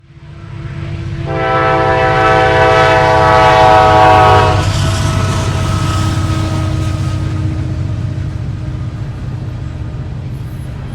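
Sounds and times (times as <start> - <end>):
locomotive engines rumbling: 0.0 - 10.9
locomotive air horn blast: 1.2 - 4.9.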